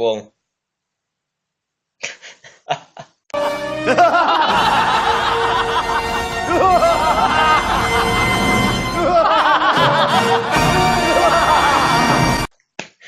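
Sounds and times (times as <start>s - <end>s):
music: 3.4s - 12.5s
snickering laughter: 3.9s - 8.2s, 9.0s - 10.6s.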